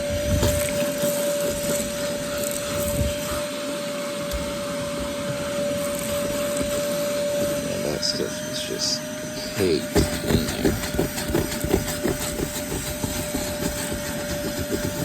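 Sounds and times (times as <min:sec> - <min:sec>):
vacuum cleaner whining: 0:00.0 - 0:15.0.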